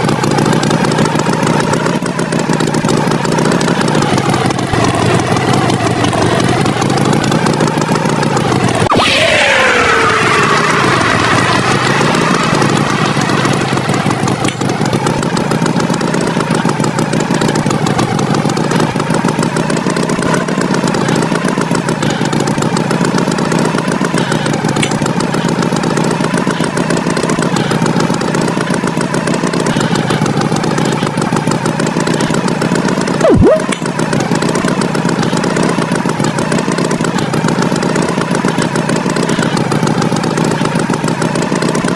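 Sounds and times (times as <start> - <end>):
engine buzzing drone: 0.0 - 41.9
swooping tone: 33.2 - 33.8.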